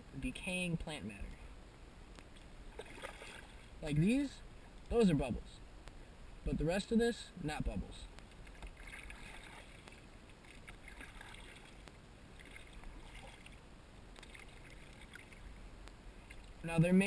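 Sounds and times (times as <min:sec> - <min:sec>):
paddle splashing and water lapping: 0:02.2 - 0:03.8, 0:08.2 - 0:16.6.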